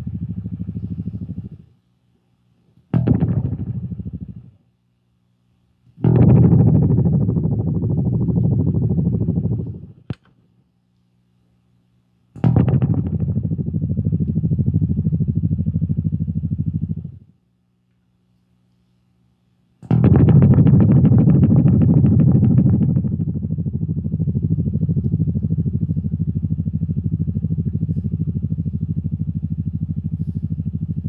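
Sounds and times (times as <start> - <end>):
bass guitar notes with delay: 0.0 - 1.6, 3.0 - 4.5, 6.0 - 10.0, 12.4 - 17.2, 19.9 - 31.0.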